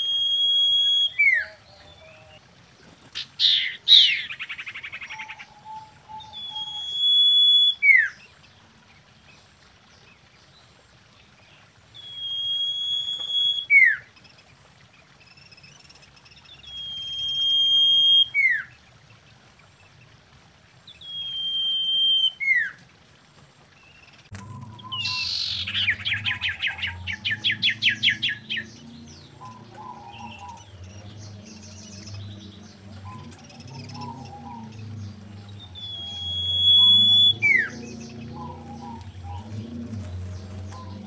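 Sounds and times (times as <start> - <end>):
bird whistling call: 0.0 - 2.4, 3.4 - 8.2, 12.0 - 14.1, 16.6 - 18.7, 21.0 - 22.8, 24.4 - 28.8, 29.4 - 32.2, 33.0 - 39.6.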